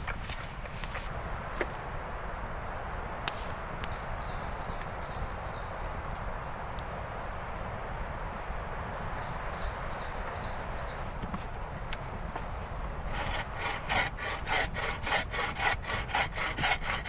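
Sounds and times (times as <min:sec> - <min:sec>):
wind rumble on microphone: 0:00.0 - 0:15.1
wind blowing: 0:00.0 - 0:17.0
songbird chirping: 0:02.8 - 0:07.7, 0:09.0 - 0:11.1.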